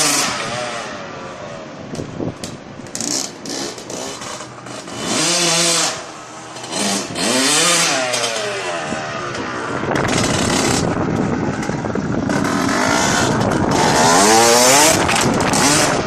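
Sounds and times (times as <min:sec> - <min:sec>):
dirt bike engine revving: 0:00.0 - 0:01.0, 0:02.9 - 0:16.0.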